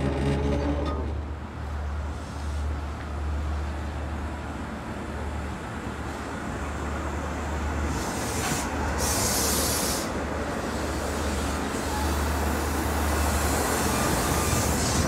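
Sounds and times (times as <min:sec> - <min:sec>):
diesel train humming: 0:00.0 - 0:15.0
loud hiss: 0:07.9 - 0:10.2.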